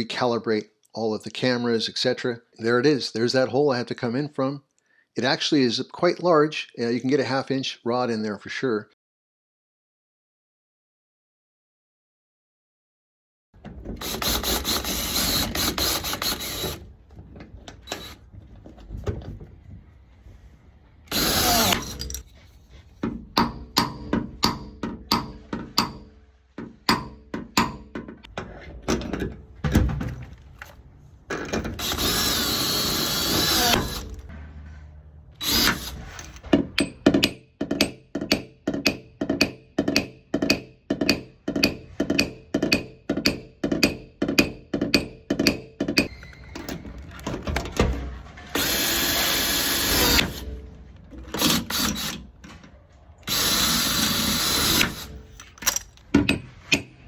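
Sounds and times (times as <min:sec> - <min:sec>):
cordless drill whining: 0:14.0 - 0:16.8, 0:17.8 - 0:18.2, 0:21.1 - 0:22.0, 0:31.7 - 0:34.2, 0:35.4 - 0:36.4, 0:48.5 - 0:50.4, 0:51.4 - 0:52.2, 0:53.2 - 0:55.2.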